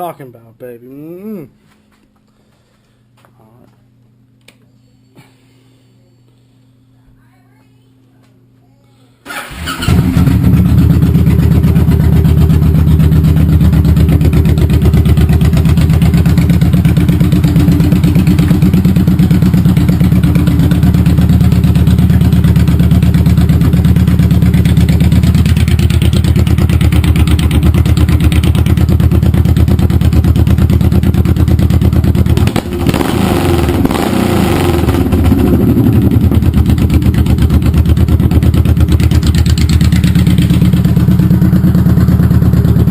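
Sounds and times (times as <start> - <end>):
motorcycle engine revving: 9.3 - 42.9.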